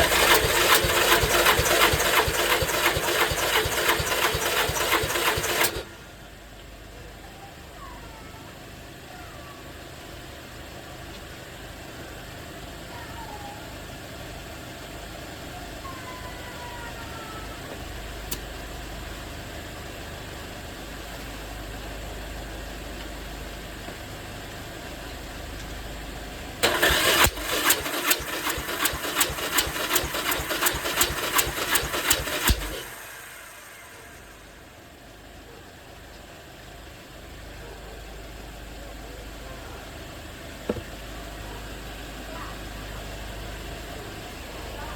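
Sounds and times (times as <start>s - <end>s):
electric starter cranking engine: 0.0s - 6.2s, 26.6s - 35.2s.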